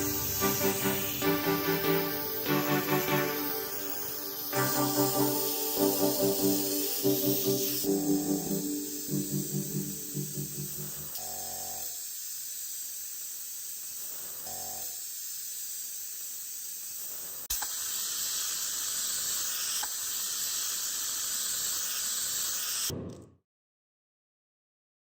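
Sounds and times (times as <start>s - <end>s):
steady hiss: 0.0s - 22.9s
click: 17.5s - 17.8s, 19.8s - 20.0s.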